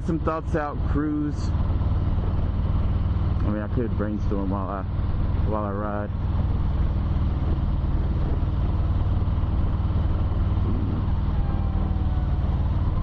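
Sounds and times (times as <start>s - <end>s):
motorcycle engine running: 0.0s - 13.0s
faint siren wail: 9.7s - 13.0s.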